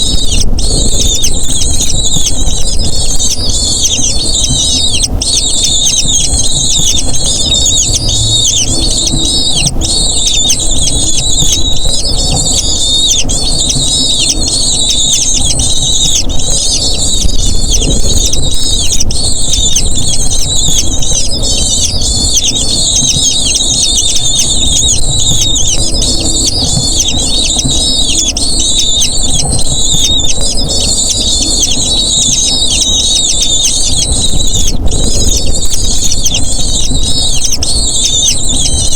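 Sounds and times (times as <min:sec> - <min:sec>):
eagle chicks squealing: 0:00.0 - 0:38.9.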